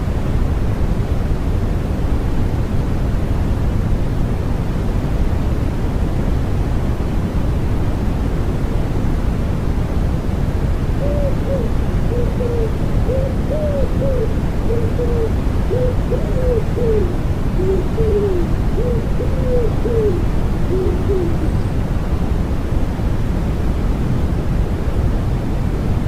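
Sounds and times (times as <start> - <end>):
rushing white noise: 0.0 - 26.0
pigeon cooing: 11.0 - 21.6.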